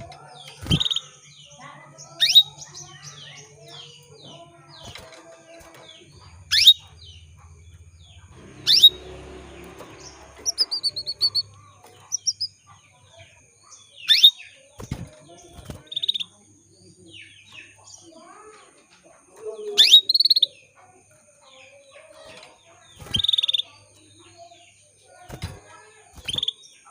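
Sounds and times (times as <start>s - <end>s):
soft canary chirps: 0.0s - 26.9s
canary call notes: 6.5s - 6.9s, 8.5s - 9.1s, 19.7s - 20.6s.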